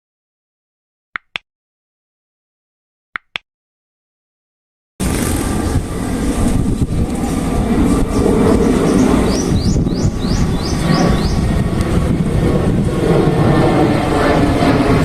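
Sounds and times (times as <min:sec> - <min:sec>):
jet engines rumbling: 0:05.0 - 0:15.0.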